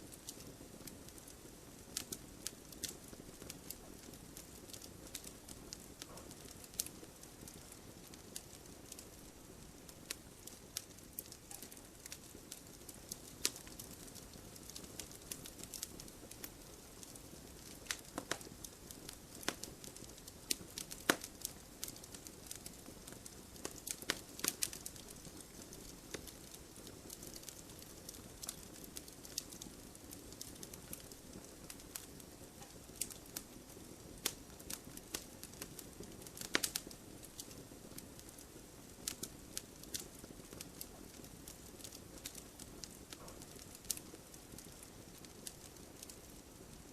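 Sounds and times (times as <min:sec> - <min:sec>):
fire hissing: 0:00.0 - 0:46.9
firewood crackling and popping: 0:00.0 - 0:46.9.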